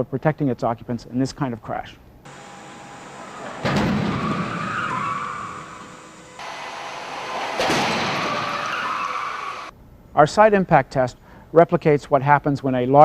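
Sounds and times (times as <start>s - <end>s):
car crash impact: 2.3s - 9.7s
metal screeching scrape: 2.3s - 9.7s.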